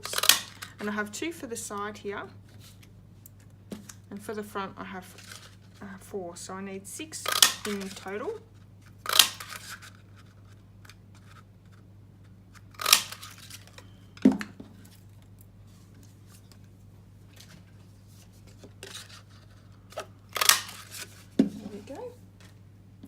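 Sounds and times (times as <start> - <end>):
paper punch snapping: 9.1 - 9.5, 12.8 - 13.5.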